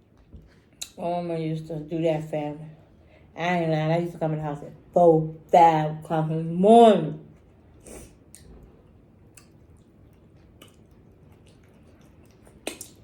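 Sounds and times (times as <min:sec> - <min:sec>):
chewing food: 0:07.2 - 0:13.0
wet mouth clicks: 0:09.3 - 0:13.0.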